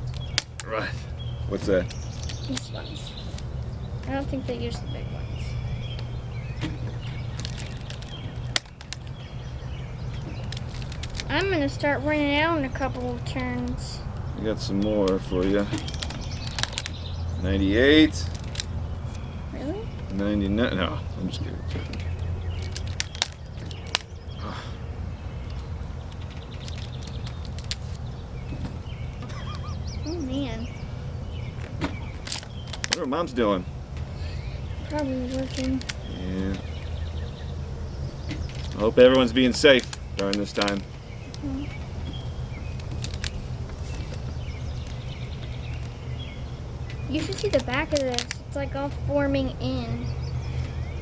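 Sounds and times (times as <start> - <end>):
rubber bands snapping: 0.0 - 4.2, 5.8 - 11.8, 12.7 - 19.2, 21.3 - 24.5, 25.4 - 29.5, 31.4 - 33.4, 34.0 - 36.9, 38.2 - 46.0, 46.8 - 48.6
steady low rumble: 0.0 - 51.0.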